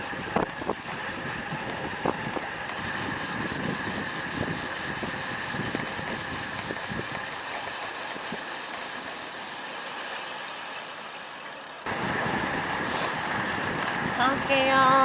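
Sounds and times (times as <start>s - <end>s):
wind noise: 0.0s - 8.5s, 11.9s - 15.0s
bicycle road noise: 0.0s - 15.0s.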